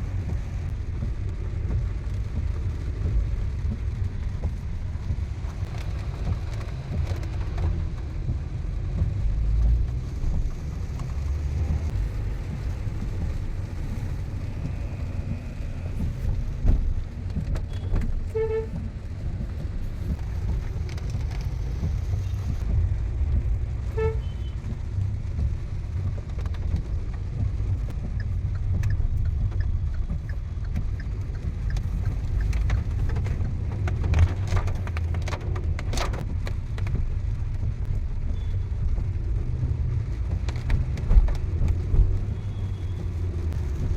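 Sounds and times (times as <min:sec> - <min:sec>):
car driving rumble from inside: 0:00.0 - 0:43.9
vehicle horn beeps: 0:24.0 - 0:24.6.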